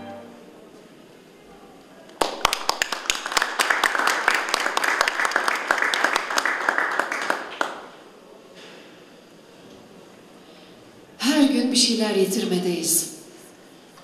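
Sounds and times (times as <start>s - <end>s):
audience applauding: 2.1s - 8.1s.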